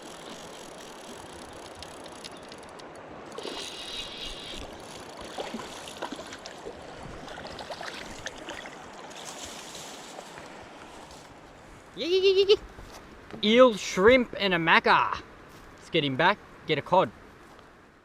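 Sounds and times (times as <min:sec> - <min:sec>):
fishing reel rattling buzz: 0:00.0 - 0:05.9
light clicks and ticks: 0:00.2 - 0:03.1.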